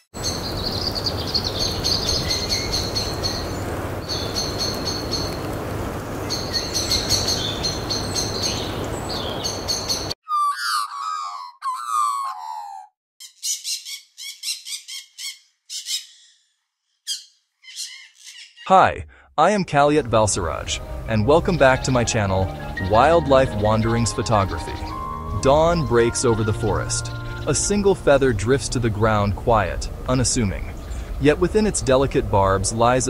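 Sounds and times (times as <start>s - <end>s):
birds chirping: 0.0s - 12.7s, 19.8s - 33.0s
steady background hiss: 24.5s - 33.0s.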